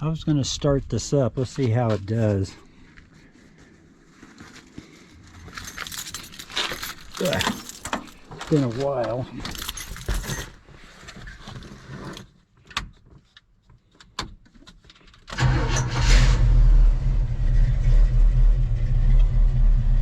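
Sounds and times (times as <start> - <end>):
car engine starting and idling: 15.3 - 20.0.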